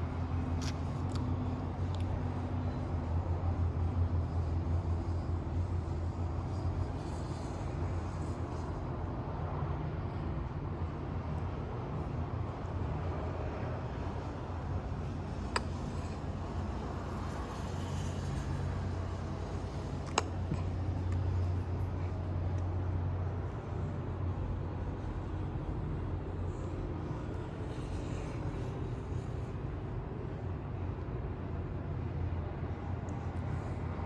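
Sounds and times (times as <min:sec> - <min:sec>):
ceiling fan rumble: 0:00.0 - 0:34.0.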